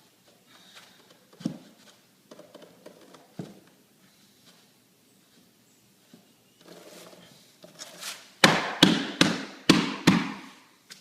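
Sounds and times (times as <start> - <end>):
plank scraping: 0.6 - 9.2
sharp knocks on flooring plank: 8.4 - 10.5.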